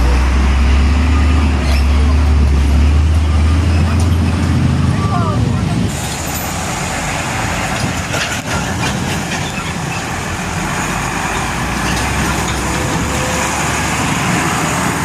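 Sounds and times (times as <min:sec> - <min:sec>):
truck diesel engine rumble: 0:00.0 - 0:15.0.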